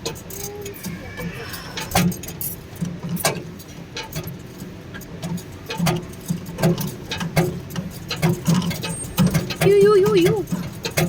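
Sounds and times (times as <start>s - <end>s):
ride machine pulsing hum: 3.5s - 11.0s
mechanical clicks and knocks: 5.0s - 11.0s.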